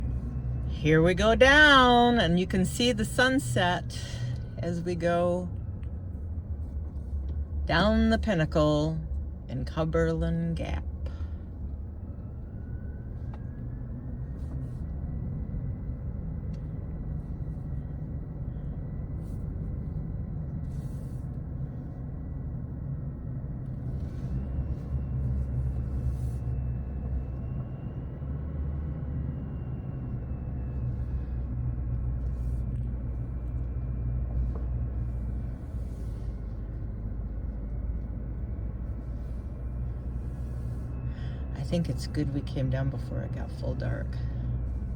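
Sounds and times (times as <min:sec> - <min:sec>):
car engine and tyre rumble: 0:00.0 - 0:44.9.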